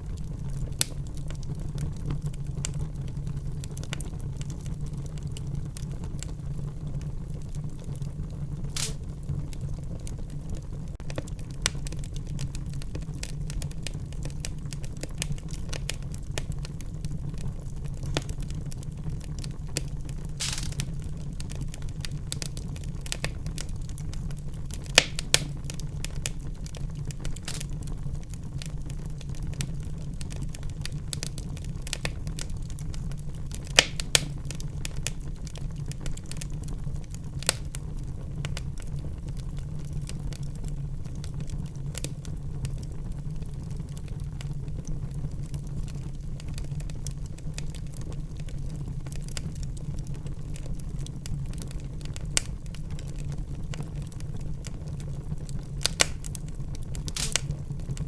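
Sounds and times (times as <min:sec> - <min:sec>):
wood fire crackling: 0:00.0 - 0:58.0
fire hissing: 0:08.7 - 0:09.2, 0:20.2 - 0:21.6, 0:27.2 - 0:27.9, 0:33.6 - 0:34.6, 0:55.8 - 0:56.4, 0:57.0 - 0:57.6.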